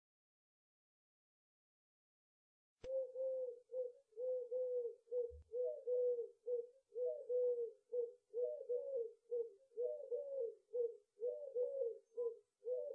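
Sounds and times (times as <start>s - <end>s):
dove cooing: 2.9s - 12.9s.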